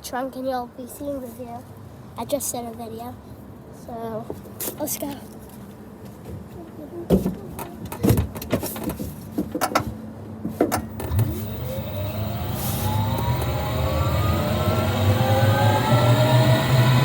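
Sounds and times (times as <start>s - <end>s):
electric vehicle drive whining: 10.8s - 17.0s.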